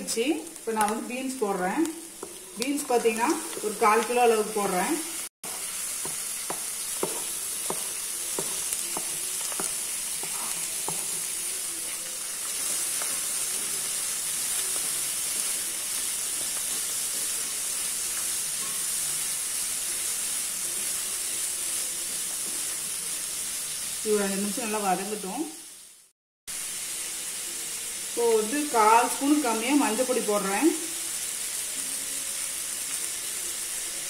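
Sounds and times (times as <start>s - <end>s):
beans sizzling in hot oil: 0.0s - 34.0s
spatula tapping metal pan: 6.0s - 11.2s.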